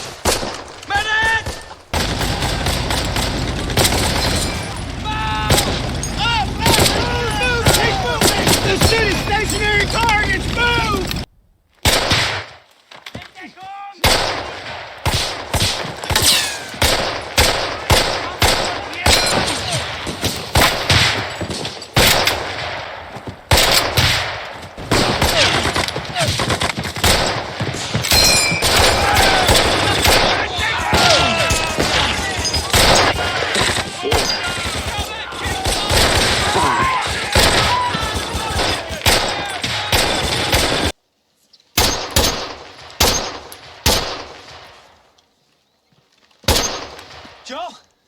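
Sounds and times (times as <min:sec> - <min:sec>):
rapid gunfire volley: 0:00.0 - 0:12.5, 0:14.0 - 0:41.0, 0:41.8 - 0:44.8, 0:46.5 - 0:47.6
single loud echoing gunshots: 0:00.0 - 0:12.6, 0:14.0 - 0:21.4, 0:41.8 - 0:44.9, 0:46.5 - 0:47.5
loud gunshots with echo: 0:01.4 - 0:12.5, 0:14.0 - 0:21.4, 0:22.0 - 0:41.0, 0:41.8 - 0:44.7
lighter gunshots: 0:02.0 - 0:11.2.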